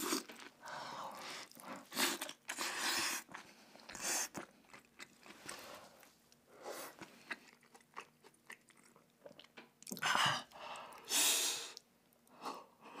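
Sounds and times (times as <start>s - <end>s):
person chewing crunchy food: 0.0s - 11.1s.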